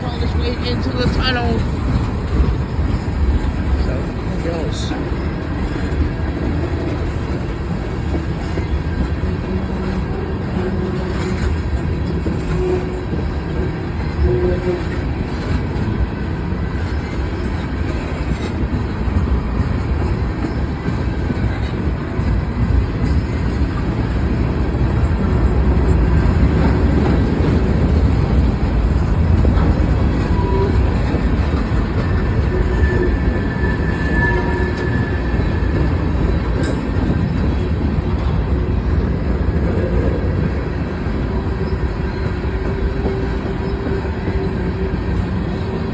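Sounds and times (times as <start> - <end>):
train wheels rumbling on rails: 0.0 - 45.9
faint wheel squeals: 32.2 - 36.7.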